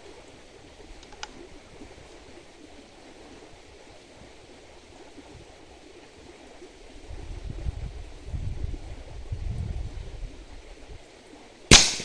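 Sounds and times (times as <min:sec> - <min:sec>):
wind hiss on microphone: 0:00.0 - 0:12.0
faint sharp click: 0:01.0 - 0:01.4.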